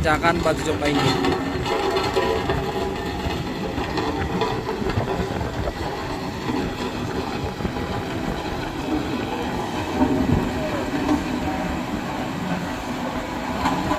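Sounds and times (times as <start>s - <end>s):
heavy diesel engines rumbling: 0.0s - 13.9s.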